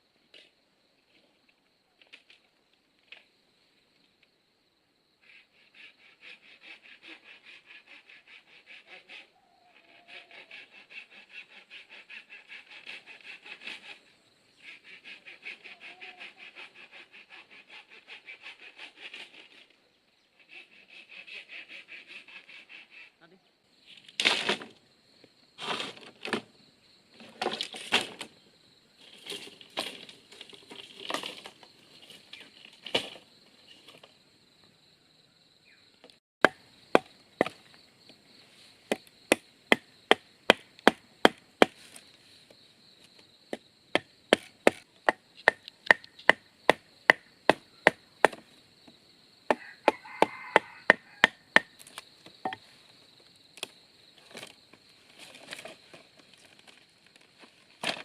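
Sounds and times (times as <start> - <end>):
blade chopping bamboo: 38.9 - 41.8, 44.0 - 48.4.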